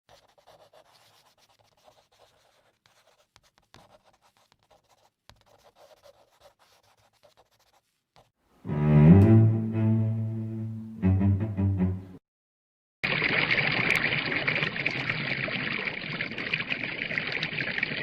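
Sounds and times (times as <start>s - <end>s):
faint scratching and rubbing: 0.1s - 8.4s.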